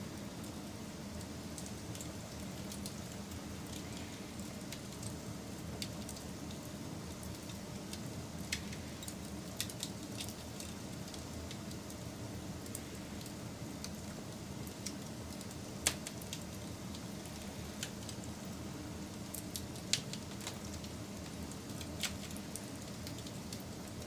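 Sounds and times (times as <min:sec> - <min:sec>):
wood fire crackling and popping: 0:00.2 - 0:24.0.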